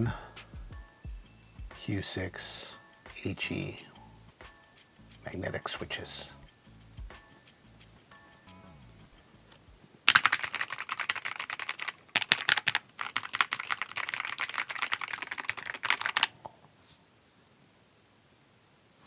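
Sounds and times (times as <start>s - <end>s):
fast keyboard typing: 10.1s - 16.3s.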